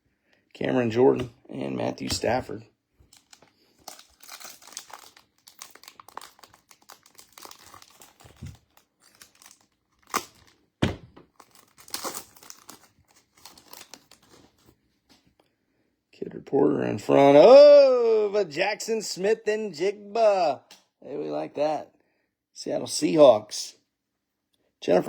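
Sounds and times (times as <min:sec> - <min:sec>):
card pack wrapper tearing and crinkling: 0:03.1 - 0:14.7.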